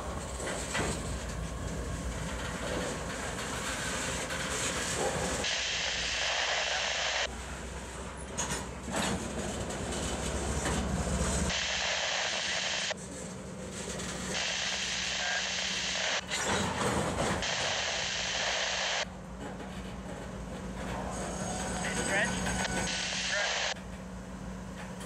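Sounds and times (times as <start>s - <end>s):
freight cars rolling on rails: 0.0s - 11.6s, 12.7s - 25.0s
diesel locomotive engine hum: 0.0s - 11.8s, 12.8s - 25.0s.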